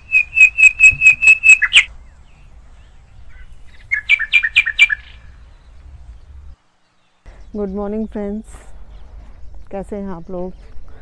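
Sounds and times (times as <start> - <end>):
bird calling sharp notes: 0.0 - 1.9, 3.3 - 5.4.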